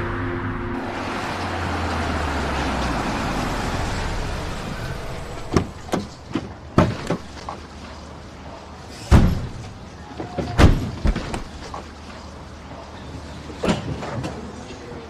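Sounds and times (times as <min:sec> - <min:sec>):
car driving on road: 0:00.0 - 0:09.9.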